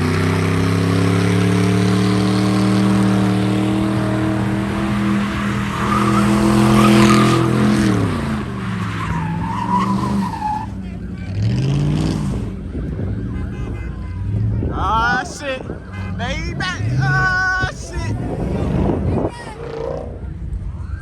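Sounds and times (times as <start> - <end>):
tyres squealing: 0.0 - 11.4
car engine revving: 0.0 - 17.3.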